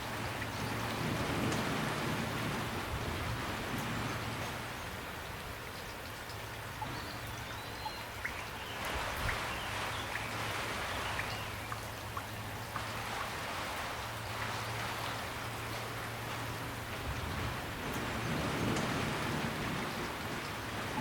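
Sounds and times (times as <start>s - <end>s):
gentle rain: 0.0s - 21.0s
drops tapping and dripping: 5.2s - 10.4s, 11.0s - 13.3s.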